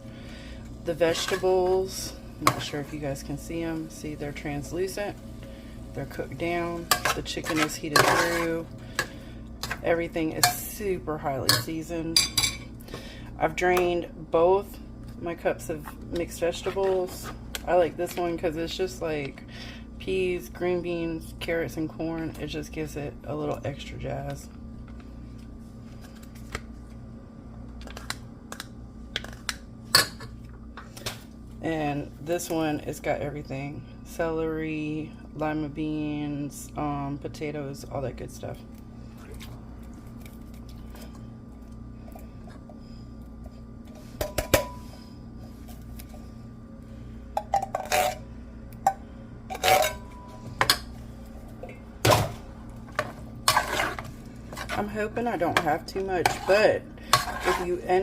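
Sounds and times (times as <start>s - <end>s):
steady low hum: 0.0s - 58.0s
utensil scraping cooking pot: 6.4s - 10.6s, 47.5s - 48.2s, 49.5s - 50.2s, 52.9s - 58.0s.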